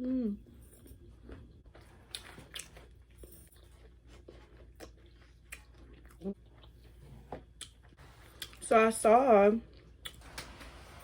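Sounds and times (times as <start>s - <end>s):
chewing fried chicken: 1.0s - 8.7s.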